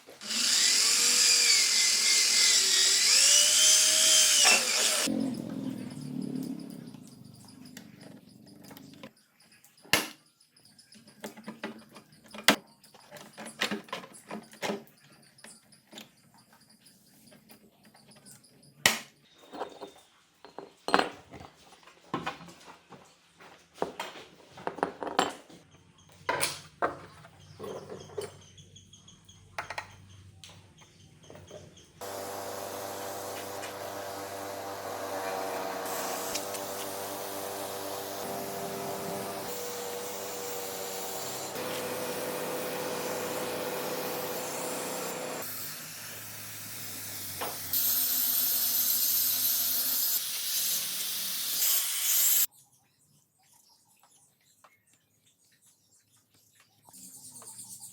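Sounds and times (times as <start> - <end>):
machine humming: 32.0 - 45.4.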